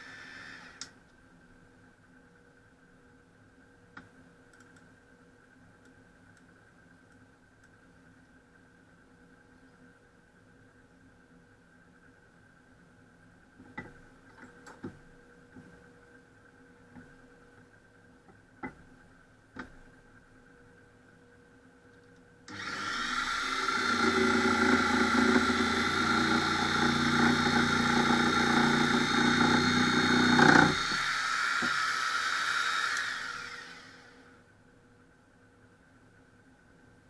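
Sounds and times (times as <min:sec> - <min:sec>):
jigsaw running: 0:22.5 - 0:34.2.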